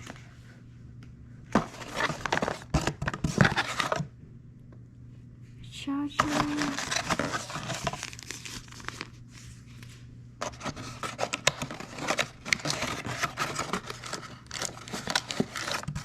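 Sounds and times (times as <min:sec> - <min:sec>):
packaging rustling and scraping: 0:01.5 - 0:04.0, 0:06.2 - 0:16.0.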